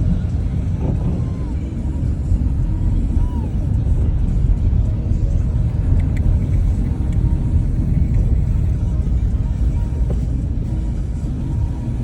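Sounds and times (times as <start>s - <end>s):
wind buffeting microphone: 0.0s - 10.2s
faint clicks: 5.9s - 7.3s.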